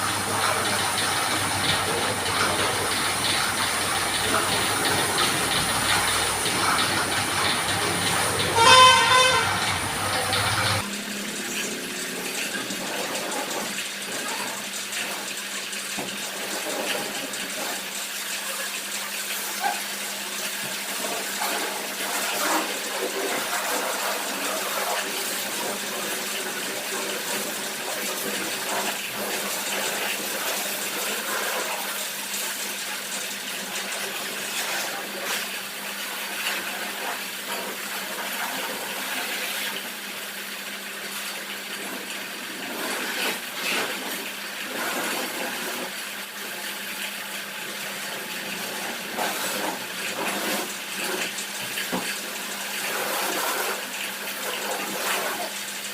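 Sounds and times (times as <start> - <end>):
pressure washer jet spraying: 0.0 - 10.9.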